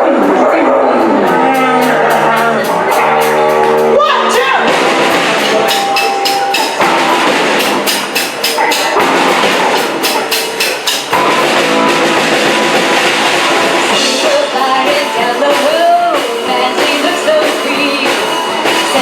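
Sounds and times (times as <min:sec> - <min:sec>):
drum kit: 0:00.0 - 0:19.0
guitar: 0:00.0 - 0:19.0
rock band playing live: 0:00.0 - 0:19.0.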